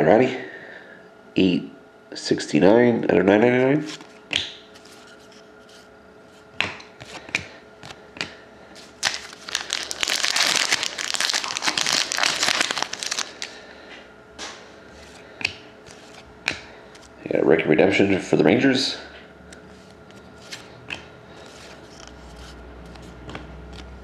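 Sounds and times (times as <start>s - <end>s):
dense crinkling: 8.8s - 13.6s
wrapper rustling and tearing: 8.8s - 13.6s
wrapper snaps: 8.8s - 13.6s.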